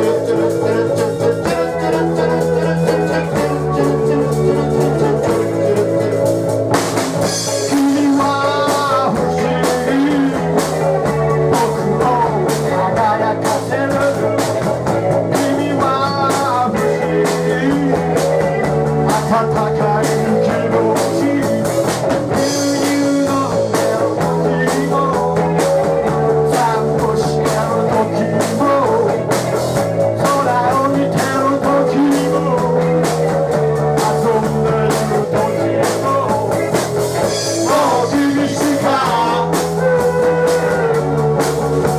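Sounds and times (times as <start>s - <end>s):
bass guitar line: 0.0s - 41.9s
drum kit beat: 0.0s - 41.9s
electric guitar: 0.0s - 41.9s.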